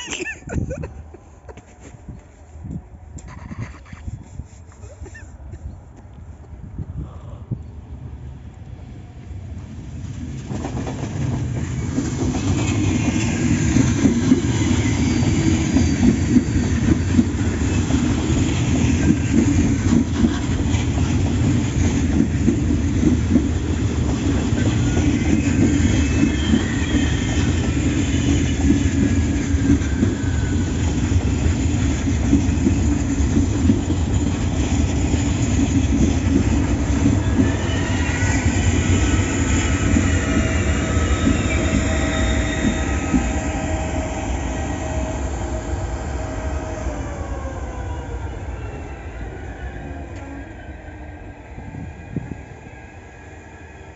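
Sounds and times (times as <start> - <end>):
train running on rails: 0.0 - 53.9
faint high wheel squeals: 13.1 - 18.2, 24.6 - 31.0, 37.0 - 46.1.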